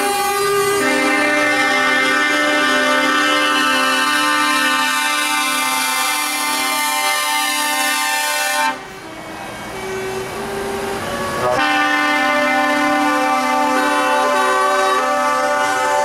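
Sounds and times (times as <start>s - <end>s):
truck air horns blasting: 0.0s - 9.0s, 11.2s - 16.0s.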